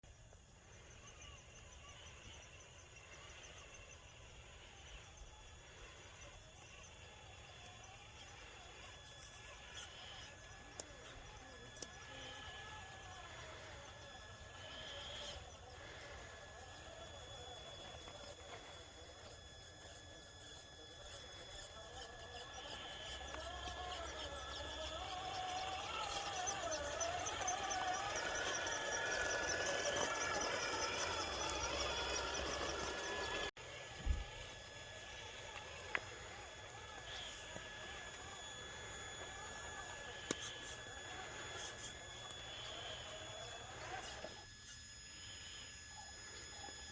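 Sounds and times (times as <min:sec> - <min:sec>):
toy truck motor whining: 0:00.1 - 0:46.9.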